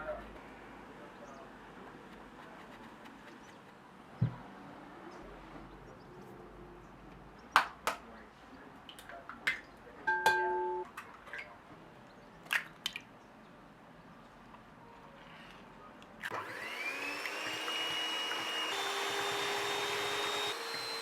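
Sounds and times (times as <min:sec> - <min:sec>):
ringing clink of dish: 0:10.1 - 0:10.8.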